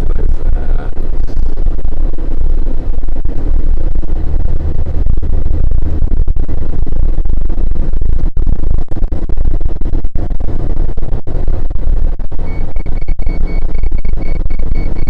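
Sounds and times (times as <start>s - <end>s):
vehicle rumble from inside: 0.0s - 15.0s.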